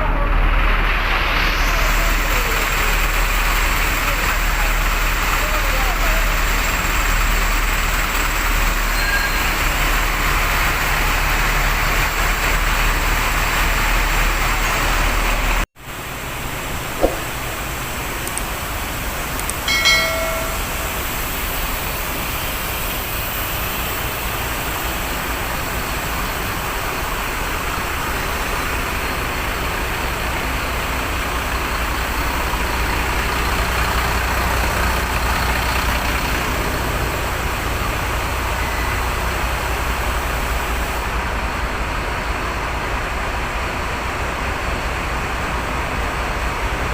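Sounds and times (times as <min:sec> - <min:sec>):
brief high-pitched tone: 0:19.7 - 0:21.0.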